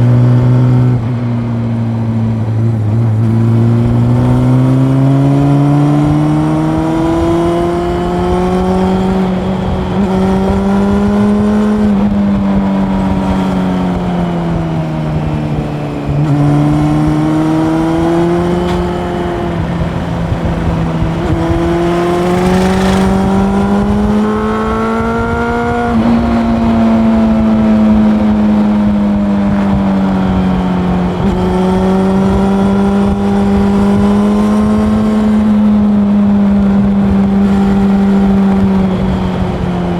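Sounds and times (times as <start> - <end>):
motorcycle engine accelerating: 0.0 - 39.9
road and wind noise: 0.0 - 39.9.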